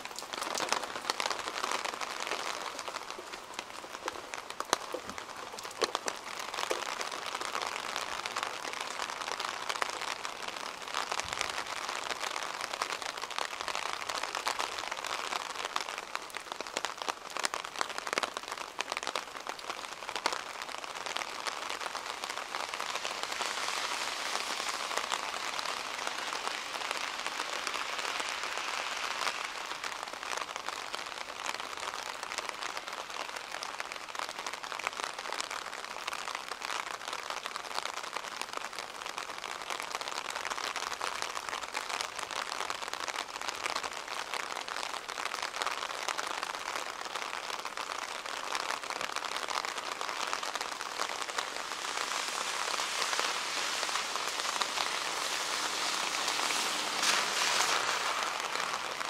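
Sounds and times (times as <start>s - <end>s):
close raindrop ticks: 0.0s - 59.0s
rain falling: 0.0s - 59.0s.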